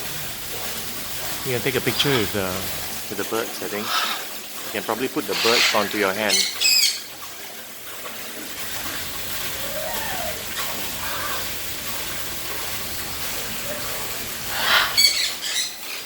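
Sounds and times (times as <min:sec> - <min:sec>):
rush of falling water: 0:00.0 - 0:16.0
bird squawking: 0:03.7 - 0:04.3, 0:05.2 - 0:07.1, 0:14.5 - 0:16.0.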